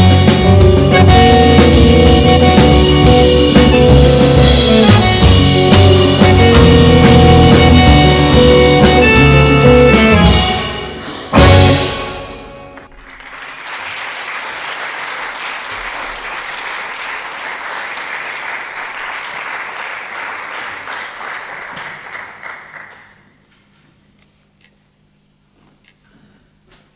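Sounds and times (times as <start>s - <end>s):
tango band final chord: 0.0s - 13.0s
audience applauding: 2.5s - 23.4s.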